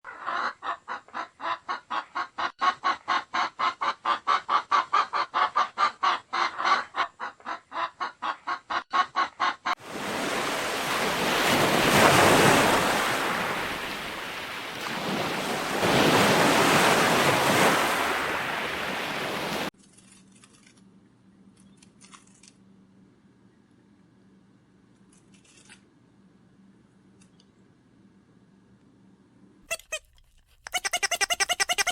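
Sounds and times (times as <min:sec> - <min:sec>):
fowl clucking: 0:00.1 - 0:09.8, 0:29.7 - 0:31.9.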